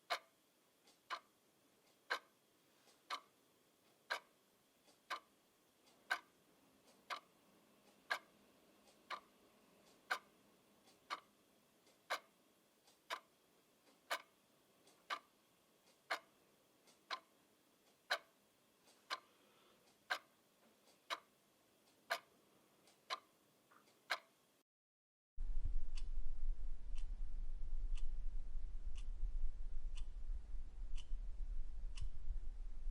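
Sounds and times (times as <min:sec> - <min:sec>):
clock ticking: 0:00.0 - 0:24.4, 0:26.9 - 0:27.2, 0:27.9 - 0:32.4
loud low hum: 0:25.4 - 0:32.9.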